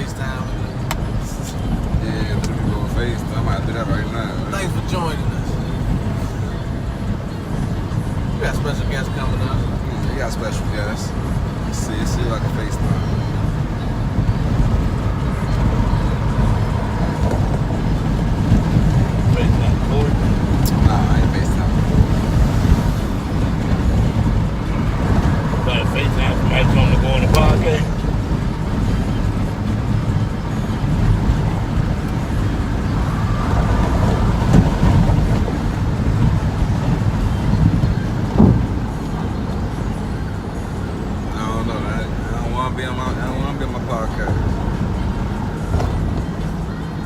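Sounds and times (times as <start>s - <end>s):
truck road and engine rumble: 0.0s - 47.0s
wind noise: 0.0s - 47.0s.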